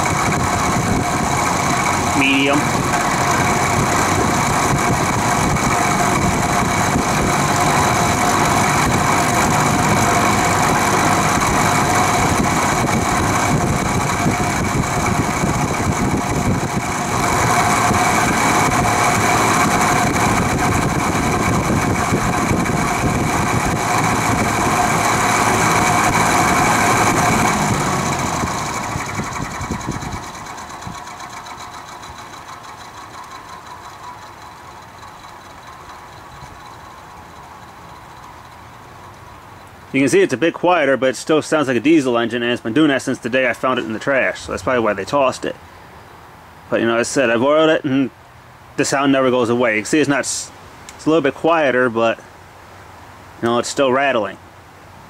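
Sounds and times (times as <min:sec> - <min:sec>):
box fan motor rattling: 0:00.0 - 0:40.2.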